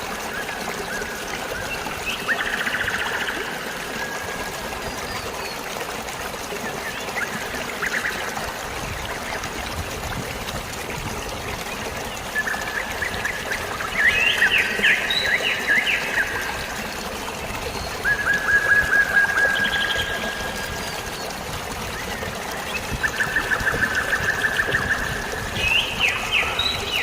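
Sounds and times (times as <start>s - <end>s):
flowing water rushing: 0.0s - 27.0s
birds chirping: 11.6s - 27.0s.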